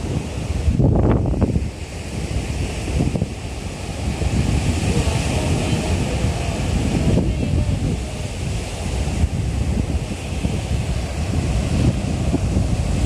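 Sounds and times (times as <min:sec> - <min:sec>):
surf washing onto beach: 0:00.0 - 0:13.0
wind rumbling on microphone: 0:00.0 - 0:13.0.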